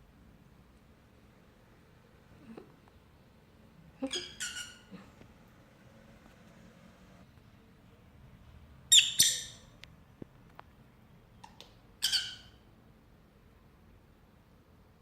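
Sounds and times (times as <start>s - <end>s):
lovebird squawks: 4.1s - 4.9s, 8.9s - 9.6s, 12.0s - 12.6s.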